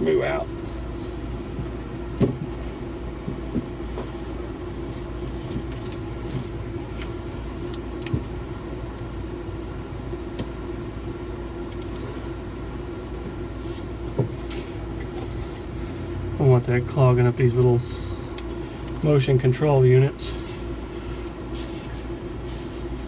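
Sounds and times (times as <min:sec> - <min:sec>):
steady mechanical drone: 0:00.0 - 0:23.0
light clicks and knocks of tools: 0:11.7 - 0:12.8, 0:18.3 - 0:20.0.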